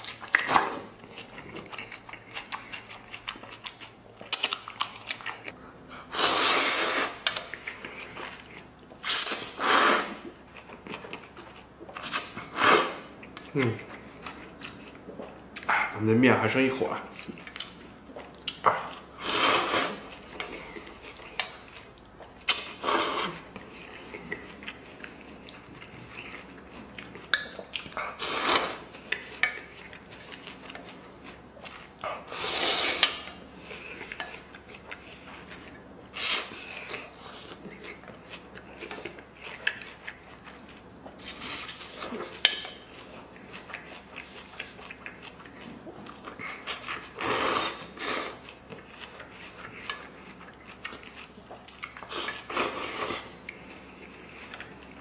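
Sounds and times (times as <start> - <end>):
person chewing: 0.0 - 16.0, 17.0 - 55.0
person slurping noodles: 6.1 - 7.3, 9.1 - 10.3, 12.0 - 13.1, 19.1 - 20.1, 22.6 - 23.5, 28.1 - 28.9, 32.2 - 33.3, 46.7 - 48.5, 52.1 - 53.3.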